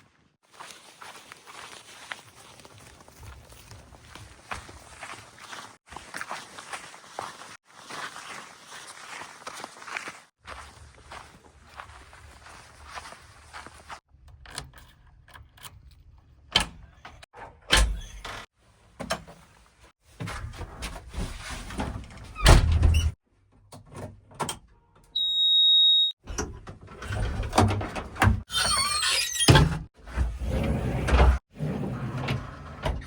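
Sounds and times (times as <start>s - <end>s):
knocks and squeals of bucket arm: 25.2s - 26.2s, 28.5s - 29.8s.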